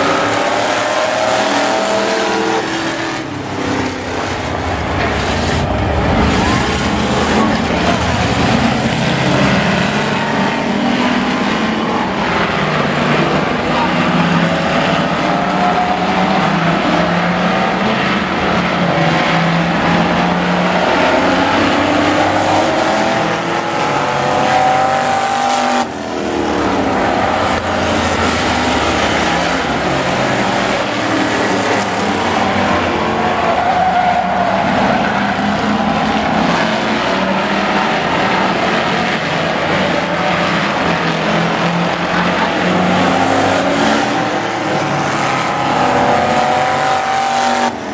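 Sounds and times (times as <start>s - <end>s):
pickup truck engines revving: 0.0s - 47.9s.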